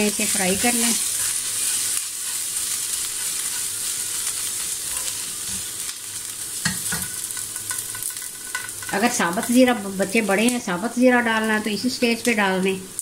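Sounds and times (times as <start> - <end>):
paste sizzling in ghee: 0.0 - 13.0
spoon stirring in pan: 0.3 - 9.6.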